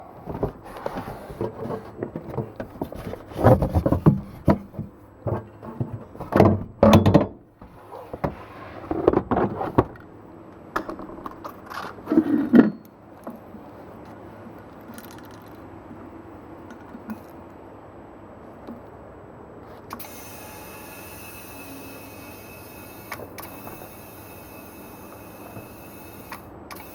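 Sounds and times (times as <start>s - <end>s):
low steady background hum: 0.0s - 26.9s
objects knocking and rattling: 0.2s - 10.1s, 10.8s - 13.4s.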